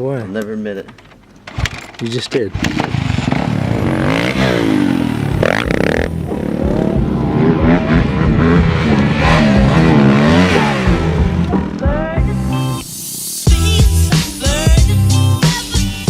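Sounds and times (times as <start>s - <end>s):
dirt bike engine revving: 2.5s - 12.2s.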